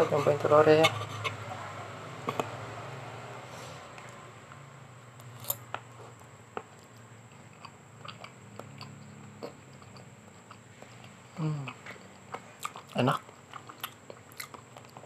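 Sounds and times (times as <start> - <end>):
quiet chewing: 5.4 - 15.0.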